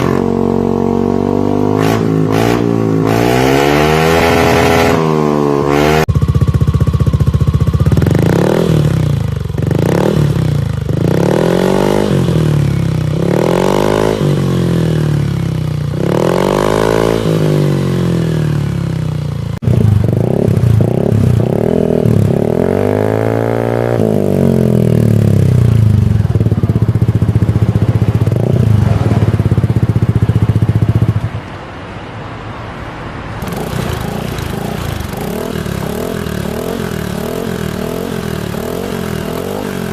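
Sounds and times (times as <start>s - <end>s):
scooter engine revving: 0.0s - 31.3s, 33.4s - 39.9s.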